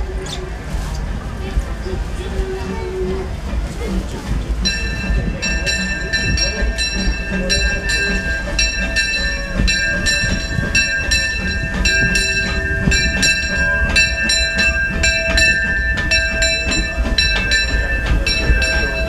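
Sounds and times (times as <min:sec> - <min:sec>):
steam train whine and rumble: 0:00.0 - 0:19.0.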